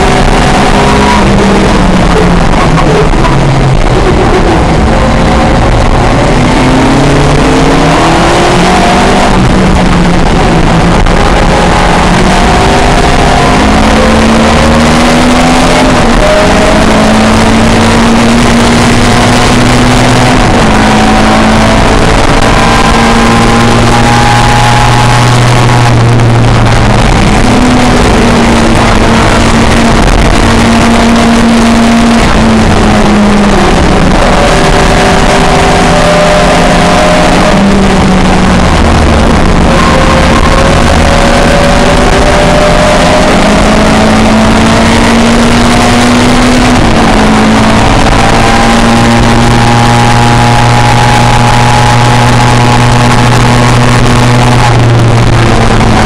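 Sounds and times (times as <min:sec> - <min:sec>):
racing car engines: 0:00.0 - 0:56.0.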